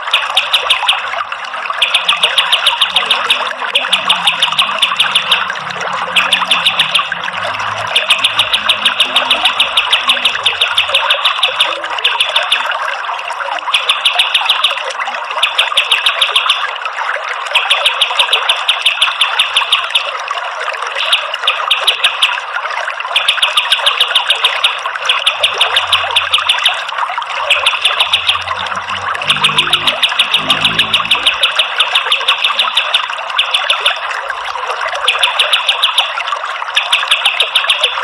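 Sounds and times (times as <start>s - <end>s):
running water rushing: 1.0s - 13.8s, 24.2s - 31.9s.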